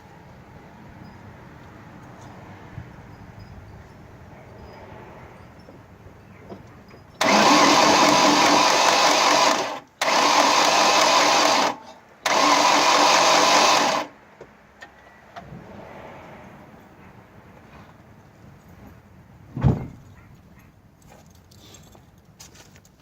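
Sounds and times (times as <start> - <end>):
car engine cranking: 7.0 - 14.1.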